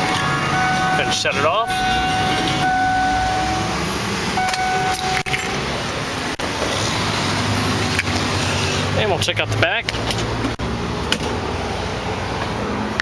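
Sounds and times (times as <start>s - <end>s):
steady warning tone: 0.0s - 6.4s
traffic noise: 0.0s - 13.0s.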